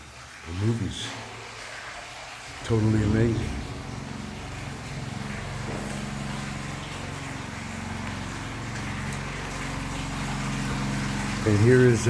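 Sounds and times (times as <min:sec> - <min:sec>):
engine running steadily: 0:02.6 - 0:12.0.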